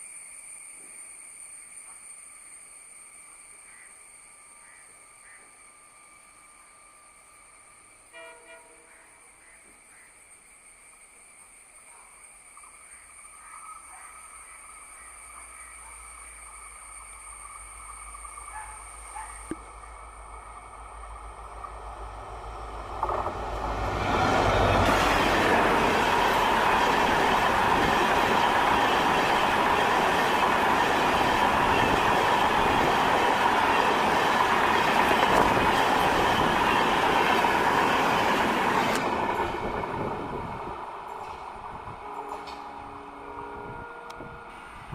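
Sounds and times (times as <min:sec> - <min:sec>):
passenger train passing: 0:02.4 - 0:44.9
train wheel squeal: 0:23.0 - 0:44.9.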